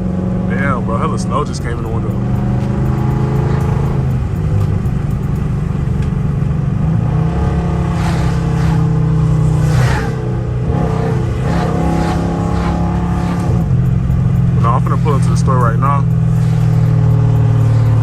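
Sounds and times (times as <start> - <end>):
car engine and exhaust: 0.0 - 18.0
rushing hiss: 7.9 - 10.4.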